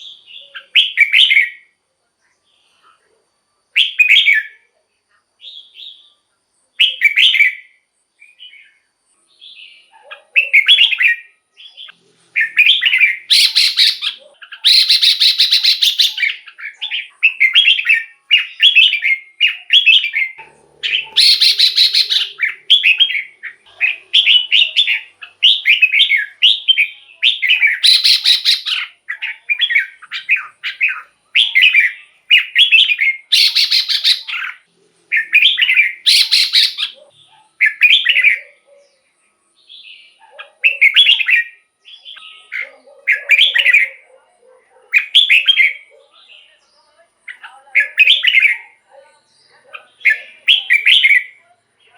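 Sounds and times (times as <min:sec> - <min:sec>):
bulbul whistled song: 0:00.0 - 0:01.8, 0:03.7 - 0:04.7, 0:06.8 - 0:08.8, 0:09.4 - 0:38.6, 0:39.7 - 0:44.1, 0:50.1 - 0:51.4
noisy bird calls: 0:09.6 - 0:39.1.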